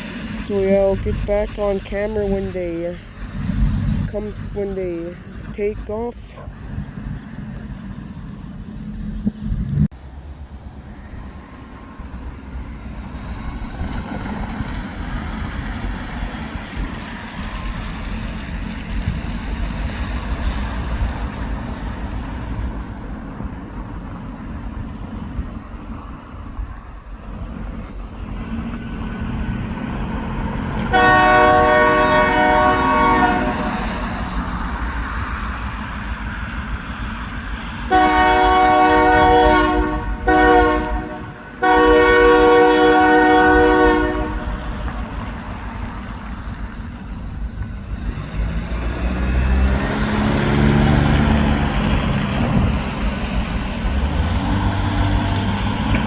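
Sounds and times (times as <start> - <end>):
idling train rumble: 0.0 - 48.9, 49.8 - 56.0
locomotive air horn blasts: 30.9 - 34.3, 37.9 - 44.6.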